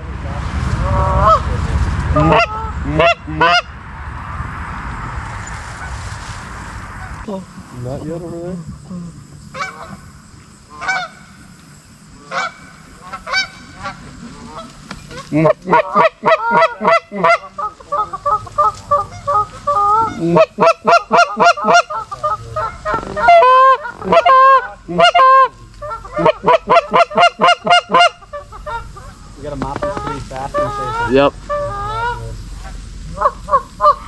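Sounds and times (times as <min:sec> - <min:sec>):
goose honking: 0:00.8 - 0:03.7, 0:09.5 - 0:11.5, 0:12.2 - 0:34.0.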